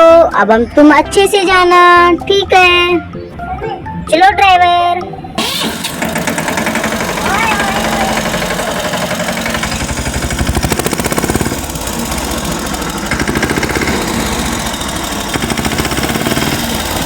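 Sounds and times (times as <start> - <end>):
tractor engine puttering: 5.3 - 17.0.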